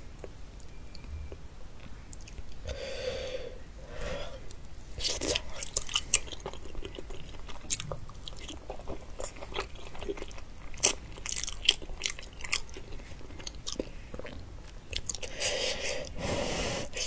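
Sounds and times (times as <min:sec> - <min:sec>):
biting and chewing: 0:04.6 - 0:16.0.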